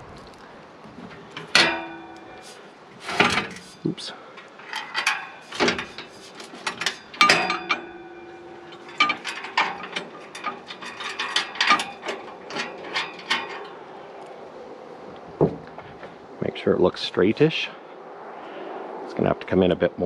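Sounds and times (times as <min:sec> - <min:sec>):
metal parts clinking and clanking: 0:00.9 - 0:14.4.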